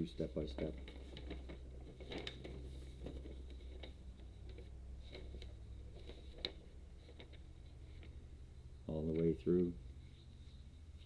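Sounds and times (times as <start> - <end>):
paper rustling: 0.3 - 8.2
pages turning: 0.6 - 8.1.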